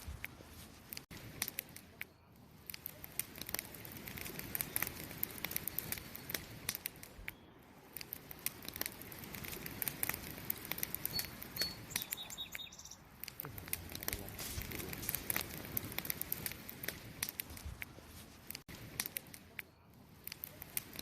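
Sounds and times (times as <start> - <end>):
wood fire crackling: 0.0 - 21.0
high chirping tones: 11.0 - 13.1.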